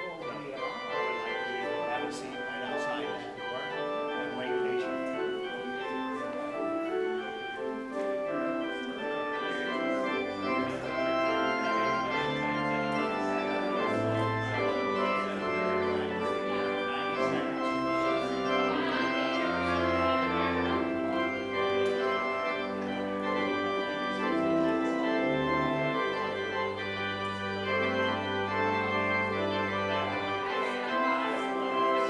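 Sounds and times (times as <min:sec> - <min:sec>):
church organ playing chords: 0:00.0 - 0:32.0
deep organ pedal bass notes: 0:08.6 - 0:32.0.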